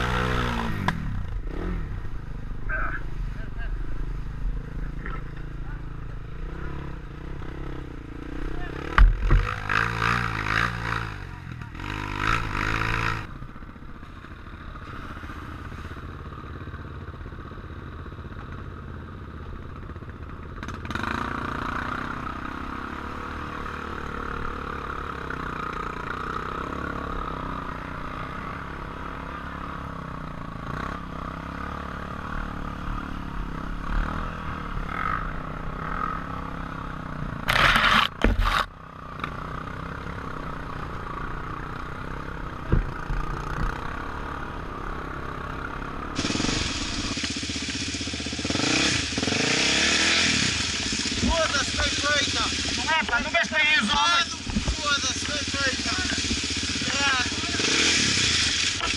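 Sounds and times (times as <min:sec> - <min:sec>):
motorcycle engine running: 0:00.0 - 0:58.9
loud burst of noise: 0:46.2 - 0:58.9.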